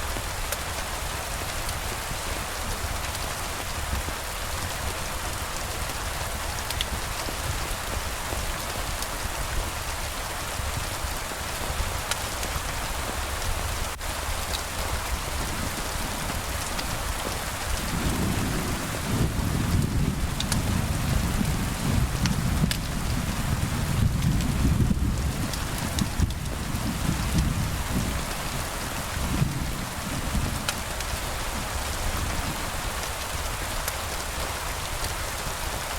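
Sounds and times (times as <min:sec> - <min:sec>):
rain falling: 0:00.0 - 0:35.9
distant thunder rumble: 0:15.3 - 0:30.7.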